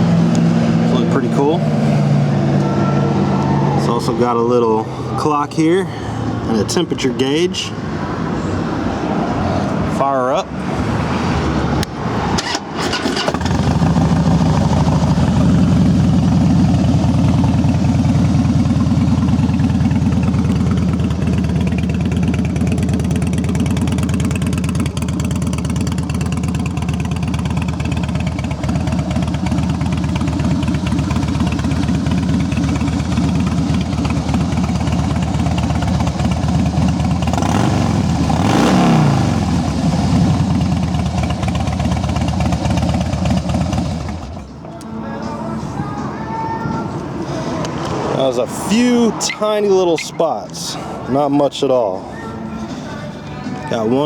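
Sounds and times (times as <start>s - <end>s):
starter motor cranking: 12.4s - 14.0s
motorcycle engine idling: 13.2s - 46.7s.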